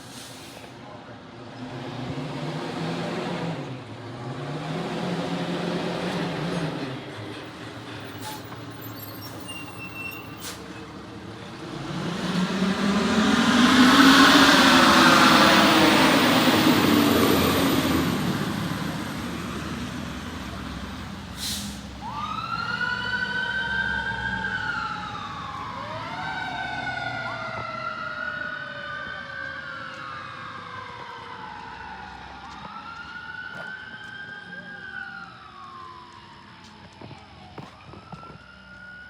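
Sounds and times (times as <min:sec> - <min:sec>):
fire engine passing: 0:00.0 - 0:39.0
siren rising sweeps: 0:11.5 - 0:21.2, 0:22.0 - 0:39.0.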